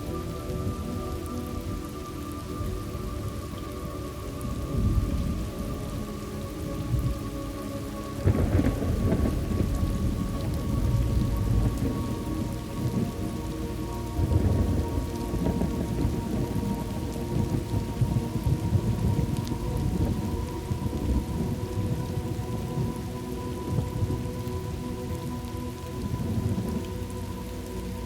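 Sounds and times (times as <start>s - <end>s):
steady rain: 0.0s - 28.0s
thunder rolling: 8.2s - 13.4s, 14.2s - 23.0s.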